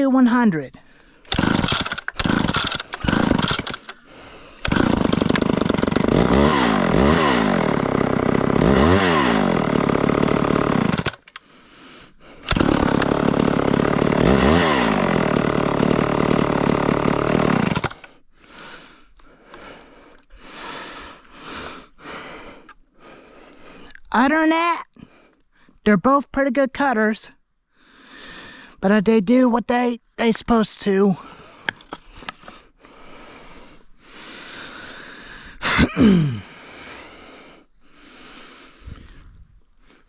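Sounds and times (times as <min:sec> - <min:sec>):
chainsaw engine revving: 0:01.3 - 0:11.5, 0:12.2 - 0:18.9.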